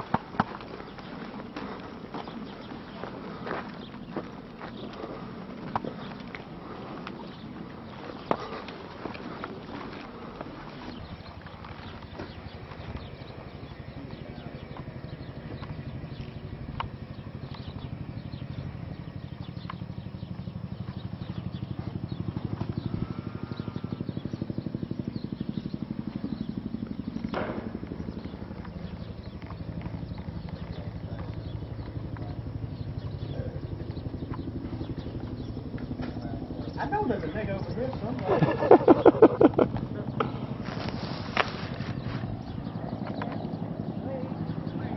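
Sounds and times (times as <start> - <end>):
vehicle engine rumbling: 0.0 - 44.9
sharp knocks or cracks: 27.3 - 27.8.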